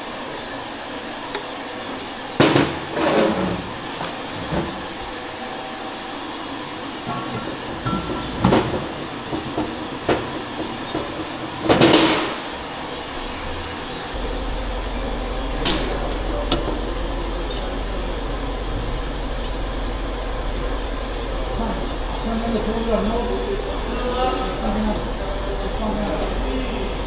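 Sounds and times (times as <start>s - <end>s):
metal tools clanking on bench: 3.0s - 5.0s, 15.6s - 17.8s, 18.9s - 19.6s.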